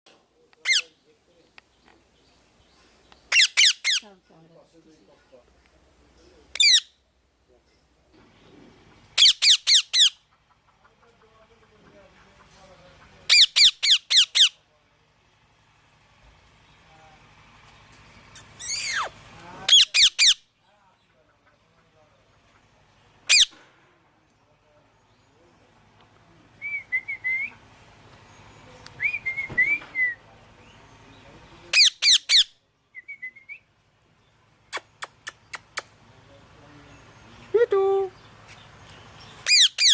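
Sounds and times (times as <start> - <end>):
loud falling parrot calls: 3.3 - 4.0, 39.4 - 39.9
parrot shrill calls: 3.3 - 4.0, 6.6 - 6.9, 9.2 - 10.2, 13.3 - 14.6, 18.6 - 19.1, 19.7 - 20.4, 23.3 - 23.5, 31.7 - 32.5, 39.4 - 39.9
parrot whistled chirps: 18.6 - 19.1.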